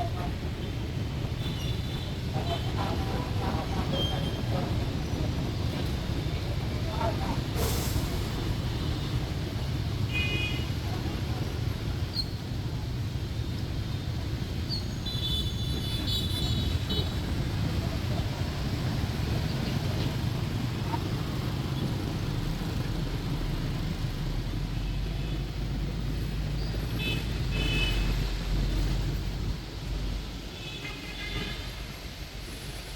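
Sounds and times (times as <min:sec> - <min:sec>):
bus engine: 0:00.0 - 0:30.6
city road traffic: 0:00.0 - 0:32.9.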